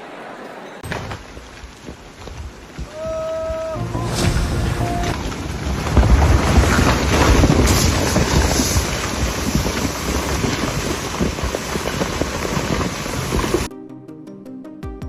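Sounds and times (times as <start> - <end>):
wind buffeting microphone: 1.8 - 13.7.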